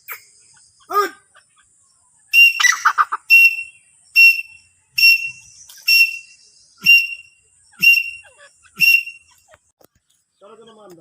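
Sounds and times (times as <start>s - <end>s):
bird whistling calls: 2.3s - 9.3s.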